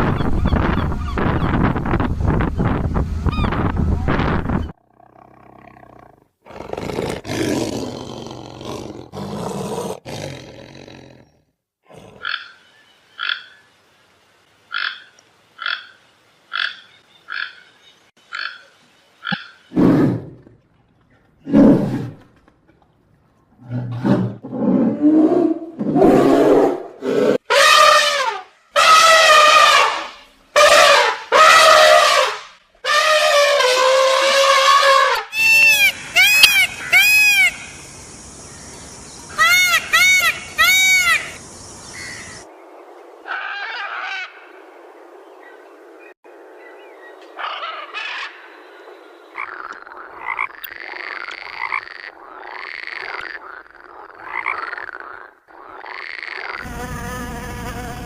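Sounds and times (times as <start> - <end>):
animal roaring: 4.8 - 11.3, 23.6 - 27.4.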